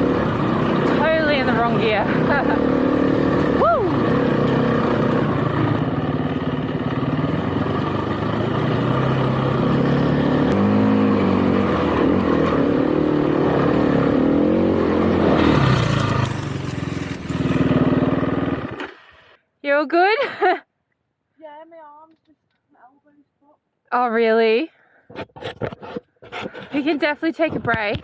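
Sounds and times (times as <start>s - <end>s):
motorcycle engine revving: 0.0s - 19.3s
road and air noise: 0.0s - 19.4s.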